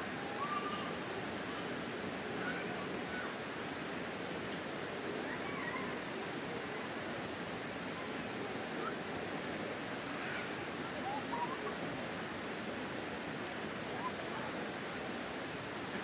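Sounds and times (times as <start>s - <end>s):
faint distant voices: 4.4s - 12.5s, 13.2s - 16.0s.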